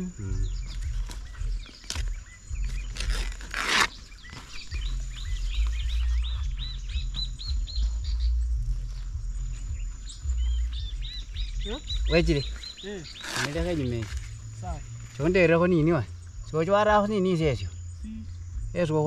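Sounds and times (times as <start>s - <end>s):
low rumble: 0.0s - 3.5s, 4.2s - 19.0s
small birds chirping: 0.0s - 19.0s
rustle of dry grass and leaves: 0.6s - 6.6s, 12.1s - 15.5s.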